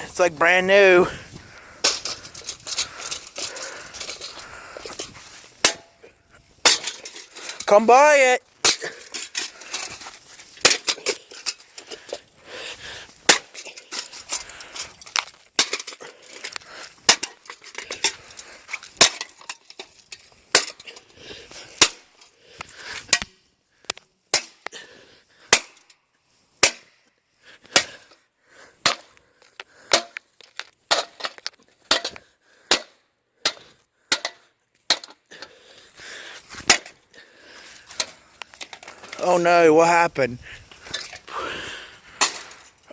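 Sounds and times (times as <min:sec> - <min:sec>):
ceiling fan being smashed: 0:06.6 - 0:07.7, 0:10.6 - 0:11.6, 0:13.2 - 0:16.5, 0:17.1 - 0:18.2, 0:19.0 - 0:19.8, 0:20.5 - 0:20.8, 0:25.5 - 0:25.9, 0:29.9 - 0:35.2, 0:42.2 - 0:42.7.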